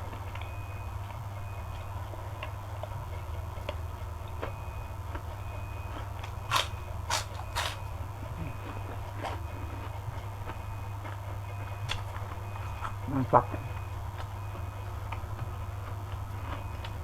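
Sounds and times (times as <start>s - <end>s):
crisp food crunching: 5.1s - 17.0s.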